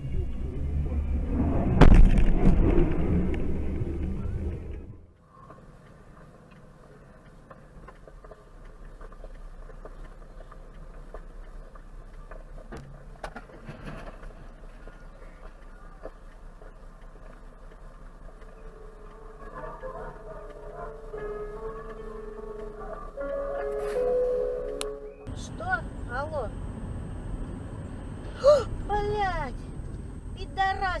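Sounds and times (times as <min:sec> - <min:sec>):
loud rumble: 0:00.0 - 0:05.1
car driving noise from inside: 0:00.0 - 0:31.0.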